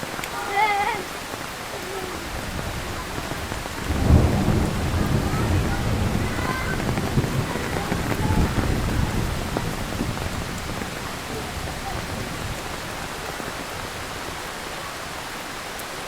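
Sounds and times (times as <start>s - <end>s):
heavy rain: 0.0s - 16.0s
thunder rumbling: 1.8s - 14.4s.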